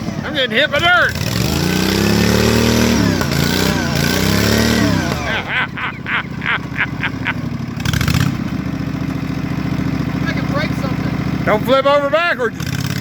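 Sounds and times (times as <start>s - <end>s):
lawnmower engine revving: 0.0s - 13.0s
tire spinning in dirt: 0.0s - 13.0s
short higher engine pulses: 0.2s - 8.4s.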